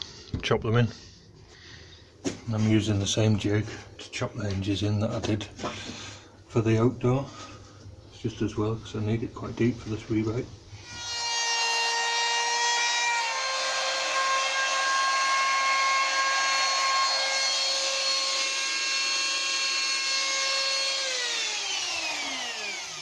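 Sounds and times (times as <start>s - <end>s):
router whining cutting wood: 10.8s - 23.0s
motor spinning down: 13.2s - 23.0s.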